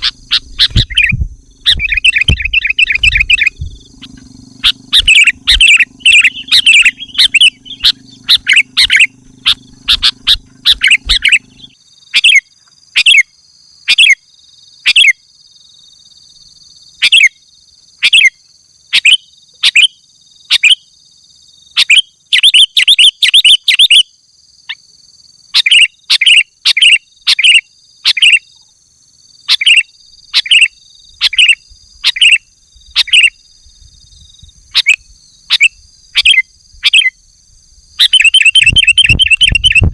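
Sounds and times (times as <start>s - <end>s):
high-pitched whine: 0.0s - 11.8s, 34.0s - 39.9s
low hum: 0.0s - 11.8s
bird chirping: 0.0s - 39.9s.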